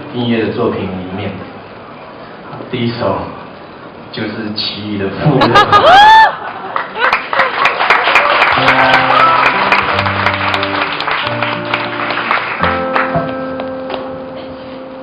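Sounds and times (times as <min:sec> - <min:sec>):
audience applause: 0:06.1 - 0:13.4
instrumental song intro: 0:08.6 - 0:15.0.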